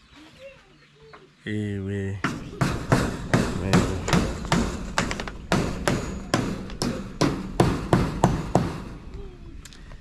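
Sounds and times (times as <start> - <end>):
hammer striking: 2.2 - 8.9.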